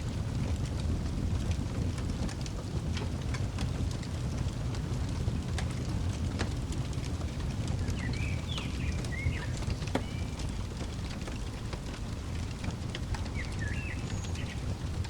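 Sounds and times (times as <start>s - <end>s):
fireplace crackling: 0.0s - 15.0s
small birds chirping: 6.9s - 15.0s.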